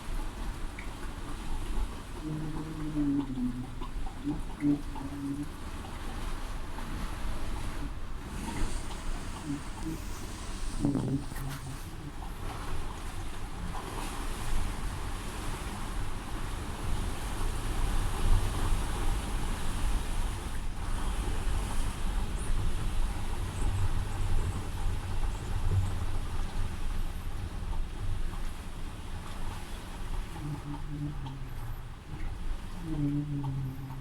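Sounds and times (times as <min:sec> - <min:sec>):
storm wind and rain: 0:11.9 - 0:30.4.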